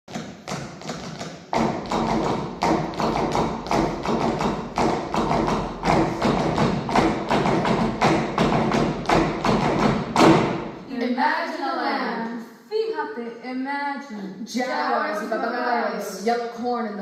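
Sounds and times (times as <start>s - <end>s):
rhythmic percussion beating: 0.1s - 11.0s.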